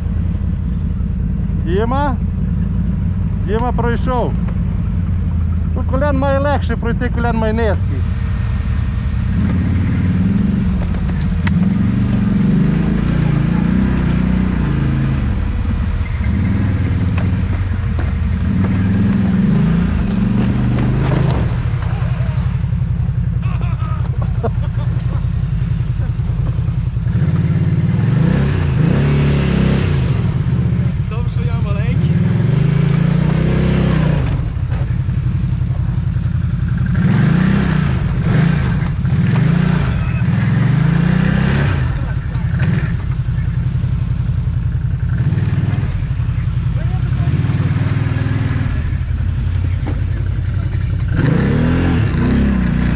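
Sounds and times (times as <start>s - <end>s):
atv engine revving: 0.0s - 52.9s.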